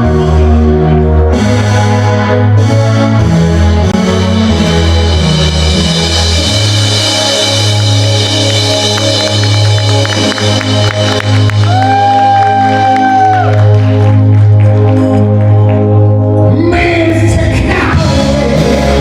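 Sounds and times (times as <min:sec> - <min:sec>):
steady bass line: 0:00.0 - 0:19.0
band music with drums: 0:02.6 - 0:14.5, 0:17.2 - 0:19.0.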